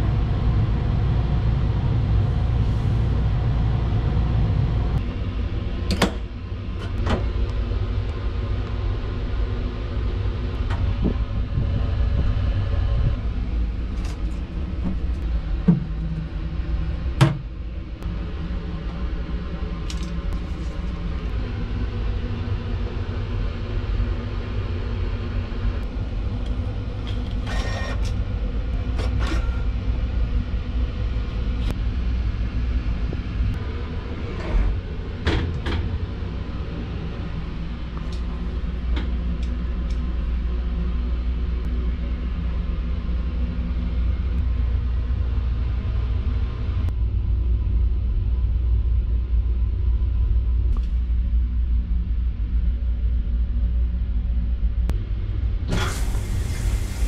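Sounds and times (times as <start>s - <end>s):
train running low rumble: 0.0s - 57.0s.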